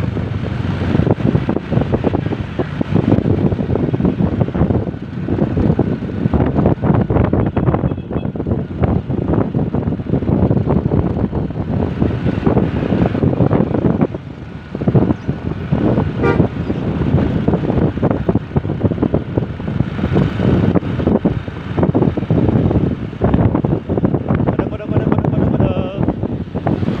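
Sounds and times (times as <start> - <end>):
road noise: 0.0 - 27.0
vehicle engine: 0.0 - 27.0
wind buffeting microphone: 0.0 - 27.0
short horn toot: 16.2 - 16.7.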